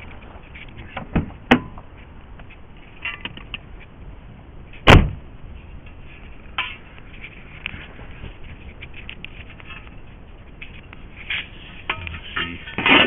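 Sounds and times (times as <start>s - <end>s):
heavy thump: 4.8s - 5.2s.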